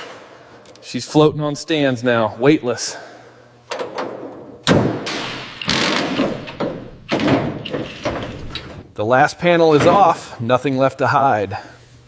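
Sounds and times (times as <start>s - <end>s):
metallic clatter of car parts: 5.1s - 8.9s.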